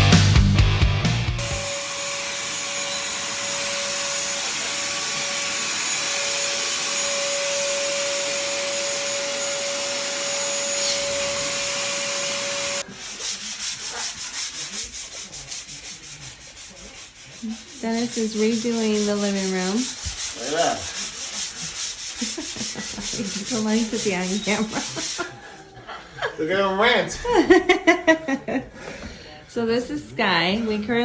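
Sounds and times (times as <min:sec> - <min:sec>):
rhythmic hand sanding strokes: 0:01.6 - 0:25.6
power sander hiss and whine: 0:01.7 - 0:12.8.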